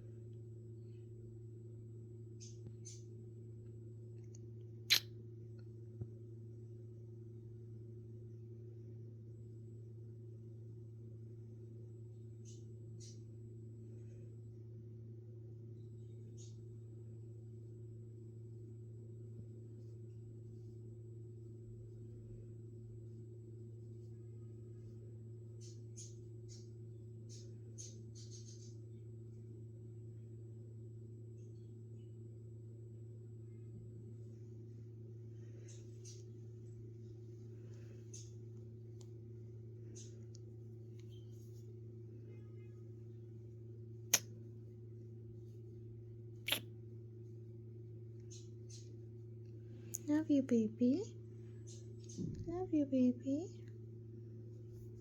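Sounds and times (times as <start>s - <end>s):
low electrical hum: 0.0s - 55.0s.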